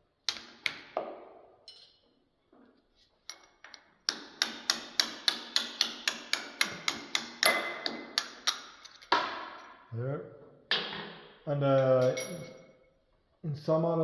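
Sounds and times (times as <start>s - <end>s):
hammer striking metal: 4.1s - 9.7s.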